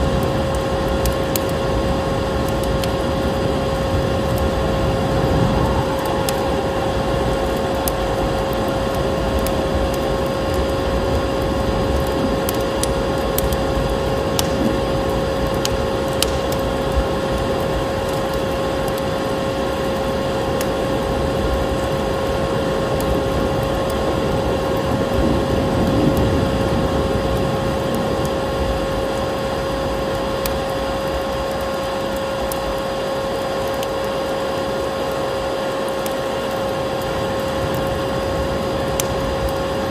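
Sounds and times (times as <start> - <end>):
wood fire crackling and popping: 0.0 - 39.9
vacuum cleaner motor hum: 1.7 - 16.0
rushing air: 2.9 - 12.9.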